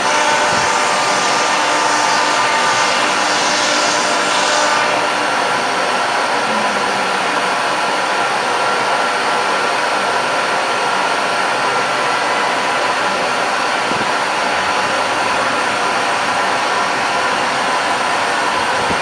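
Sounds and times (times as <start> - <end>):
router spindle cutting wood: 0.0 - 8.7.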